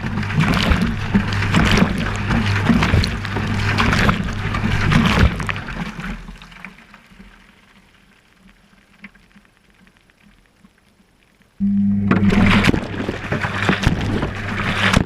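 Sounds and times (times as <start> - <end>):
motor hum: 0.0 - 6.4, 11.6 - 15.0
water sloshing in washing machine: 0.0 - 6.8, 12.0 - 15.0
faint ticks: 7.2 - 11.6.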